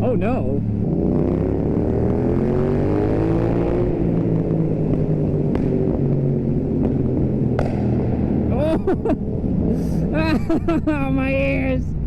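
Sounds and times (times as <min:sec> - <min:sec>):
low wind rumble: 0:00.0 - 0:12.0
motorcycle engine accelerating: 0:00.0 - 0:12.0
exhaust pops: 0:04.8 - 0:06.2, 0:06.8 - 0:08.2.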